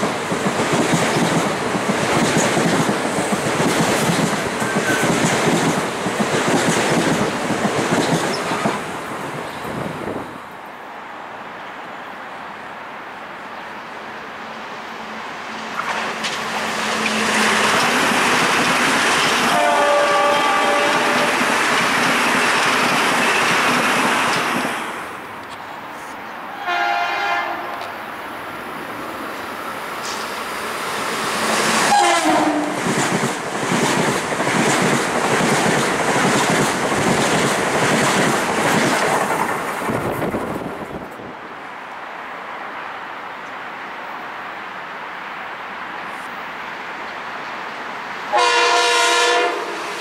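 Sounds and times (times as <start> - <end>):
train passing: 0.0 - 50.0
train horn: 19.4 - 21.5, 26.5 - 27.8, 31.8 - 32.8, 48.3 - 50.0.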